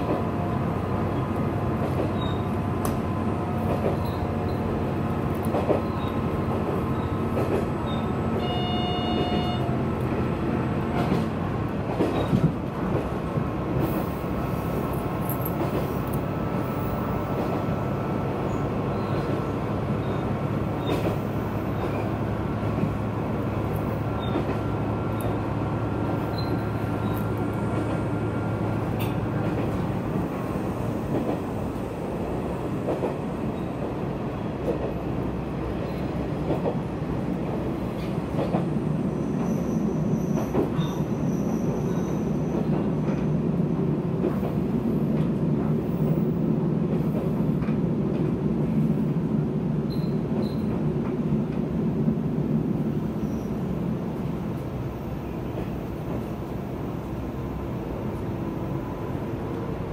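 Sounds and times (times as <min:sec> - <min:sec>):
railcar engine and wheels rumbling: 0:00.0 - 0:59.9
faint high wheel squeal: 0:02.1 - 0:02.6, 0:04.0 - 0:04.7, 0:06.9 - 0:09.7, 0:20.0 - 0:21.0, 0:26.2 - 0:27.3, 0:39.1 - 0:42.7, 0:49.9 - 0:50.7, 0:53.2 - 0:53.7.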